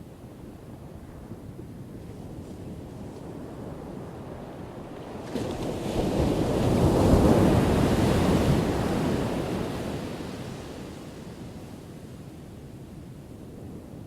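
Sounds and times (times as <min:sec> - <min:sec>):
steady wash of sea: 0:00.5 - 0:14.0.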